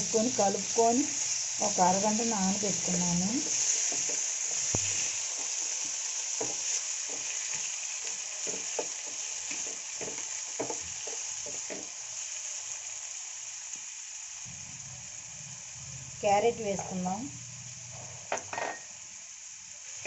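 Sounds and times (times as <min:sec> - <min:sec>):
chicken and onions sizzling: 0:00.0 - 0:20.0
spatula scraping and knocking pan: 0:03.4 - 0:12.0.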